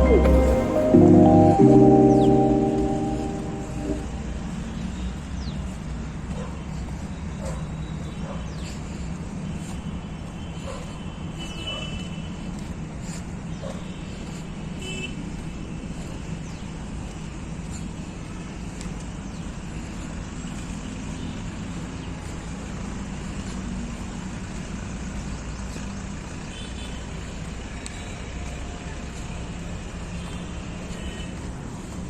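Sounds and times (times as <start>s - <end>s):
high chirps: 0.0s - 4.4s.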